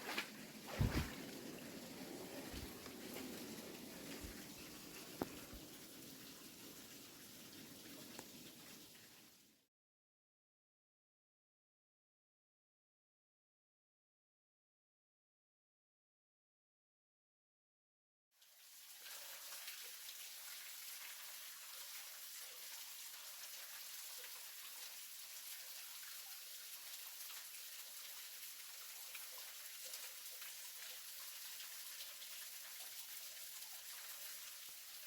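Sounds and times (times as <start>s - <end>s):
waterfall splashing into pool: 0.2s - 8.8s.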